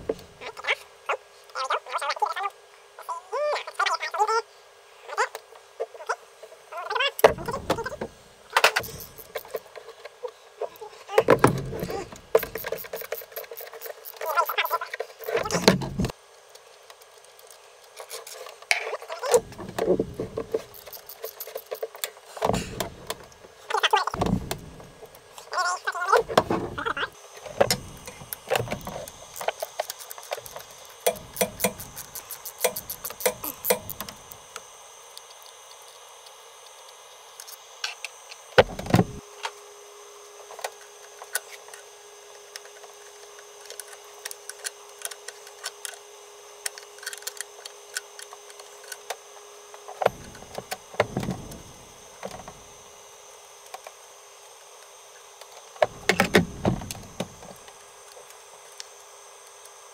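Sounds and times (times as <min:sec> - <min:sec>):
steady hum: 0:00.0 - 0:01.5, 0:07.2 - 0:16.2, 0:19.2 - 0:39.4, 0:49.8 - 0:54.2, 0:55.8 - 0:59.4.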